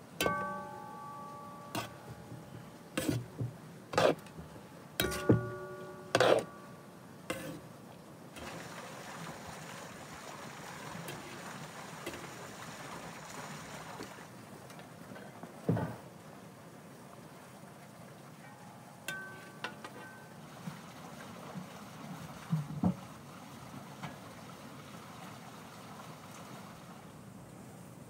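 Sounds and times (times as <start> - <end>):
metal spatula knocking on pan: 5.0 - 6.5.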